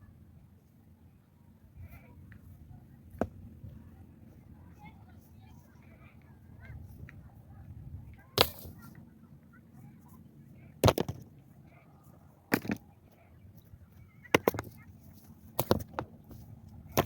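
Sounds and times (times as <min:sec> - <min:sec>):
hand tool striking earth and stone: 0:08.4 - 0:08.8, 0:10.8 - 0:11.3, 0:12.5 - 0:12.8, 0:14.3 - 0:14.8, 0:15.6 - 0:16.1.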